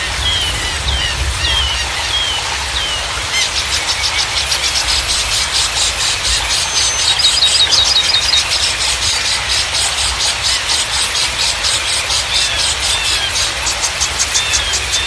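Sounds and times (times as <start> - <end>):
running water: 0.0 - 15.0
bird high-pitched pulsing trill: 3.8 - 15.0
bird warbling whistle: 4.8 - 9.0.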